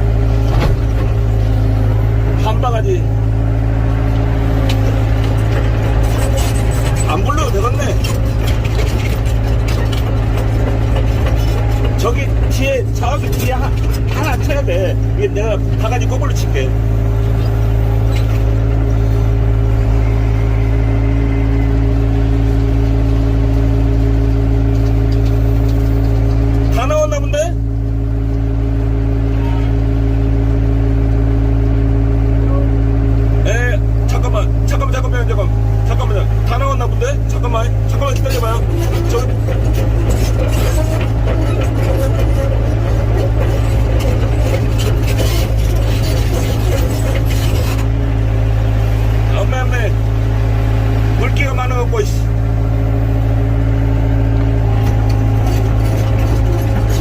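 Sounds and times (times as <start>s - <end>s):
excavator diesel engine running: 0.0s - 57.0s
clatter: 4.6s - 16.4s, 23.5s - 27.5s, 35.9s - 47.9s, 54.8s - 57.0s.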